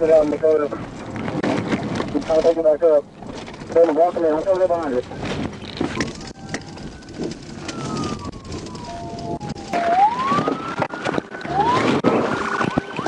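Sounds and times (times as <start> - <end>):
road noise: 0.0 - 13.0
police siren wailing: 6.0 - 13.0.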